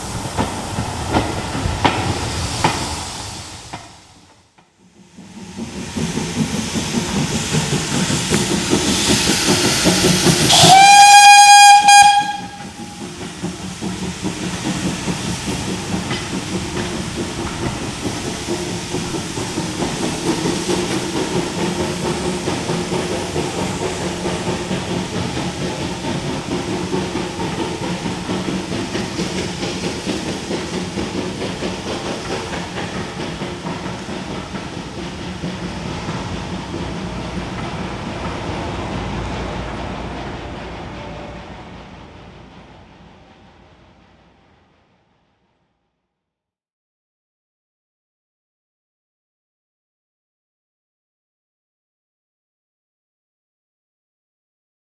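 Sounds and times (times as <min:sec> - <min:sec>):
train running with rail clatter: 0:00.0 - 0:45.5
steam locomotive whistle: 0:10.2 - 0:13.1.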